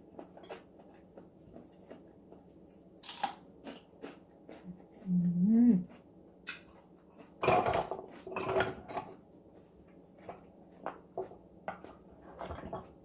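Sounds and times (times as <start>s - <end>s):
dishes and utensils clattering: 7.4s - 9.2s, 11.2s - 13.0s.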